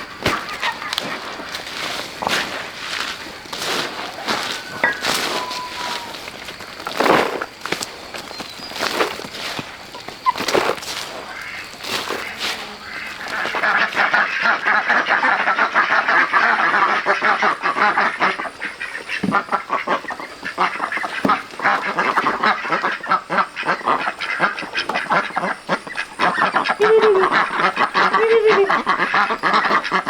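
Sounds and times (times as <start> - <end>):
chorus of rapid animal calls: 0.0 - 30.0
short rising and falling calls: 3.6 - 6.5.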